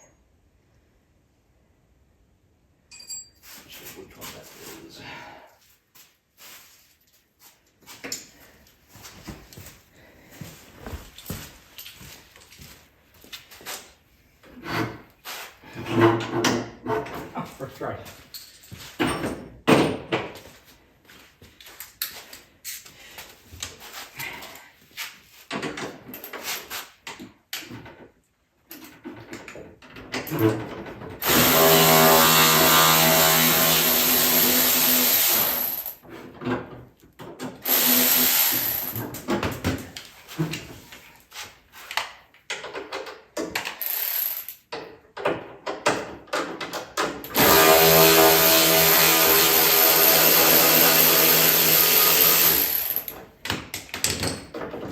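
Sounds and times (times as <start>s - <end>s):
tools clinking and knocking: 2.8s - 3.5s, 18.2s - 20.4s, 52.1s - 54.9s
power drill running: 31.2s - 36.0s, 37.6s - 39.0s, 43.8s - 44.4s, 47.3s - 53.2s.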